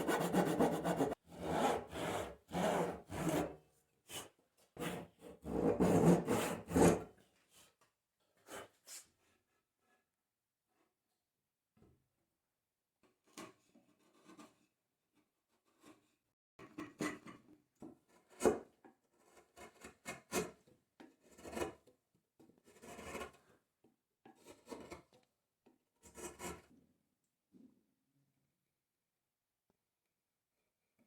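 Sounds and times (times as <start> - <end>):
hand tool scraping wood: 0.0 - 3.5.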